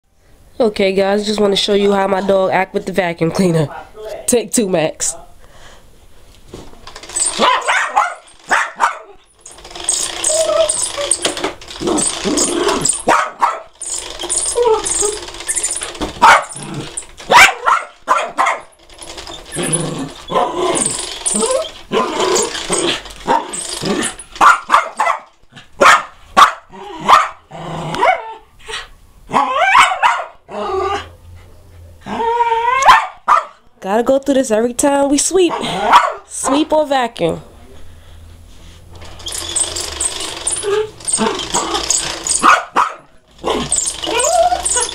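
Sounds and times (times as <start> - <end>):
dog barking: 7.3 - 9.2, 13.0 - 13.8, 16.2 - 16.6, 17.3 - 18.7, 24.4 - 27.4, 28.0 - 28.4, 29.3 - 30.4, 32.8 - 33.6, 35.5 - 36.6, 42.3 - 44.9.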